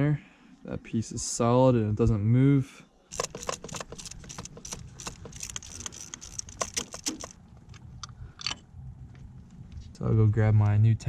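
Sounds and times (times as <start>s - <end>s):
metal parts and tools clinking: 3.1s - 7.8s.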